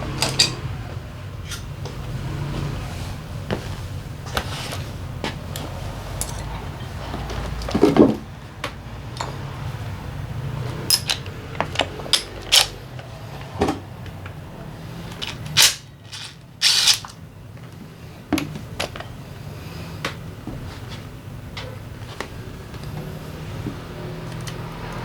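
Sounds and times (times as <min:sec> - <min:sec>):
metal tools clinking: 0:06.2 - 0:06.6, 0:10.9 - 0:12.8, 0:15.1 - 0:17.2
short rasping bursts: 0:15.6 - 0:17.1.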